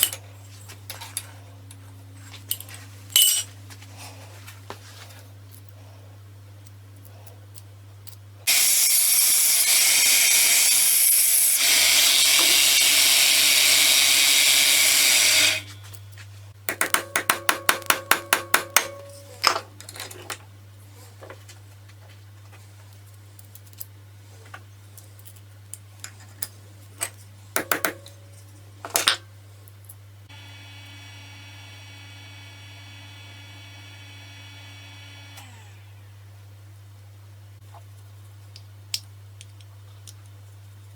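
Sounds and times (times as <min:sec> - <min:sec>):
sharp taps: 0:16.7 - 0:19.0
knocks: 0:16.7 - 0:19.2.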